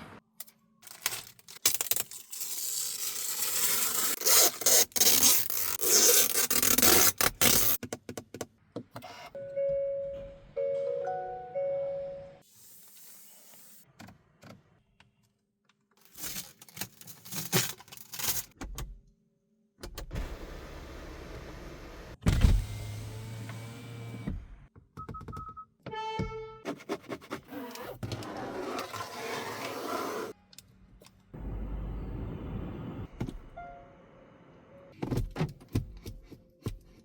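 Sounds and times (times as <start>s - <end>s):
plastic wrapping rustling: 16.0s - 18.6s.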